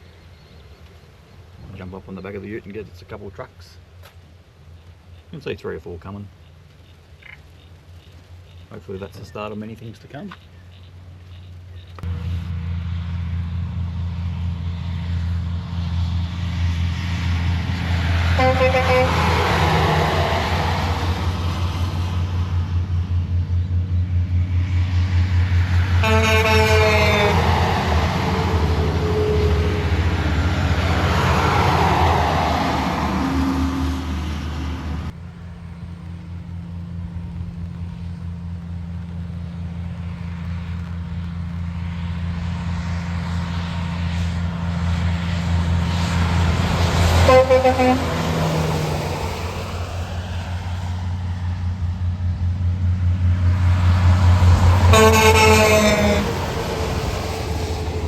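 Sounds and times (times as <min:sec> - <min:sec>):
trucks passing: 0:00.0 - 0:58.0
truck air horn blasts: 0:18.3 - 0:19.6, 0:26.0 - 0:27.7, 0:28.3 - 0:30.2, 0:47.2 - 0:48.3, 0:54.8 - 0:56.4
steady low hum: 0:32.8 - 0:46.8.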